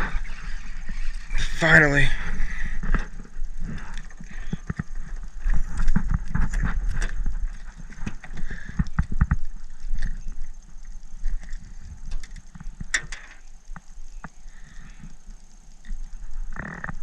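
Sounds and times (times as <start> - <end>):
fishing reel being cranked: 0.0 - 13.5.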